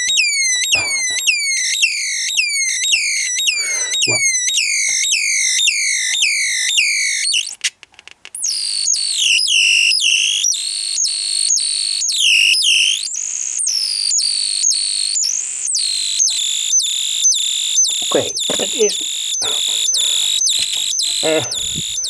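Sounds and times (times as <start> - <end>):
electronic bird chirps: 2.4 - 5.1, 16.2 - 22.0
crackles: 17.9 - 22.0.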